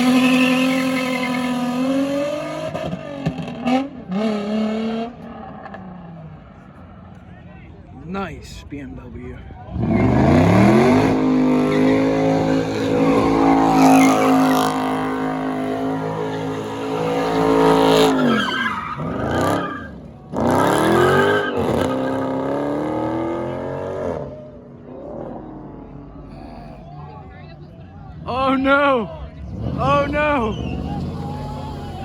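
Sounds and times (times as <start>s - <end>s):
car engine revving: 0.0s - 6.8s, 9.6s - 32.0s
tyres squealing: 9.8s - 22.4s, 29.5s - 32.0s.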